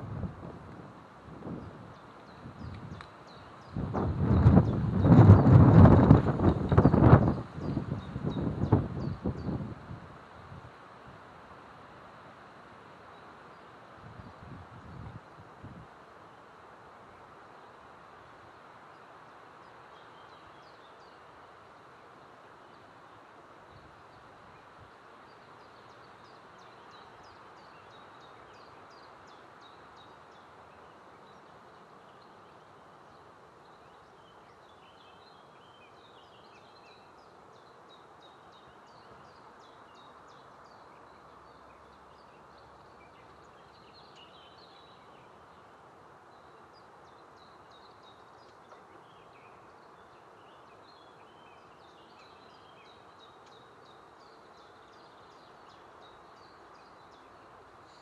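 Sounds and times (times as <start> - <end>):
background hiss: 0.0 - 58.0.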